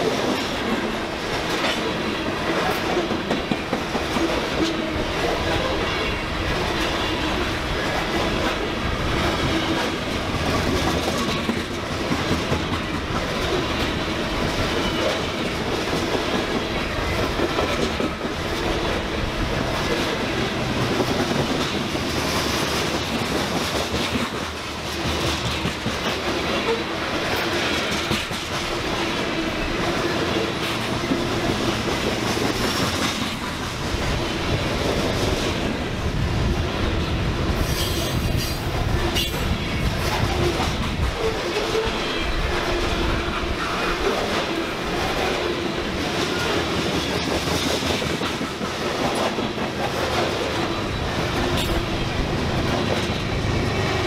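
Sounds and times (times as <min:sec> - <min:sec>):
freight train rumbling past: 0:00.0 - 0:54.0
wheels clicking over rail joints: 0:06.6 - 0:34.2.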